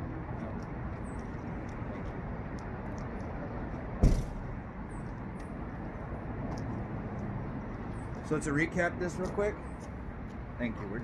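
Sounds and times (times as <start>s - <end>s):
loud thump: 4.0s - 4.6s.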